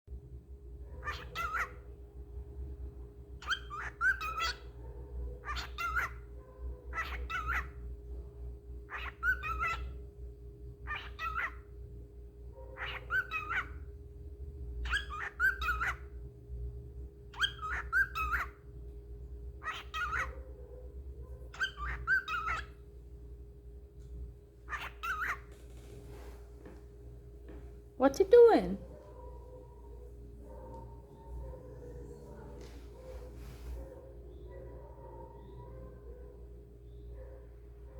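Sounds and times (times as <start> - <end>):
cockatiel mimicking speech: 28.0 - 28.8.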